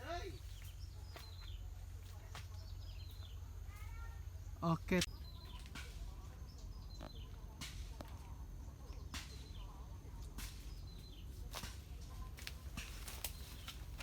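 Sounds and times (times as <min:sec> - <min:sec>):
faint bird chirps: 0:00.0 - 0:07.6
steps rustling through dry reeds: 0:11.4 - 0:14.0.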